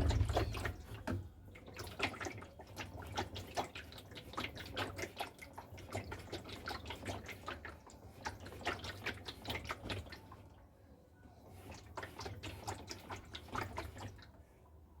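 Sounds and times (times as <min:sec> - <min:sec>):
low steady hum: 0:00.0 - 0:01.9
water splashing in washing machine: 0:00.0 - 0:10.6, 0:11.4 - 0:15.0.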